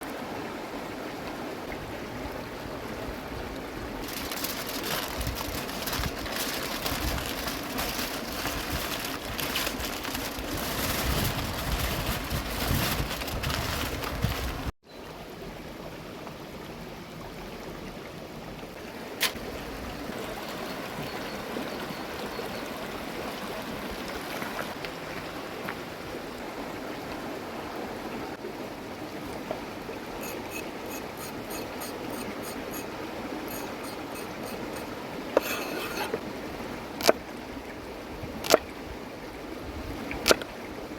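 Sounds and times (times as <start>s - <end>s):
river water running: 0.0s - 12.6s, 14.9s - 40.9s.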